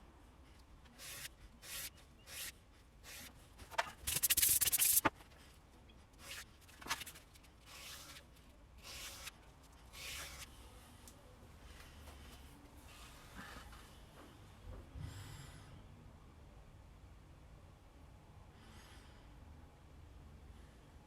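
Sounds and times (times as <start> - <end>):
blade scraping on sandpaper: 1.0 - 3.3, 4.0 - 5.1, 7.7 - 8.2, 8.8 - 9.3, 9.9 - 10.5.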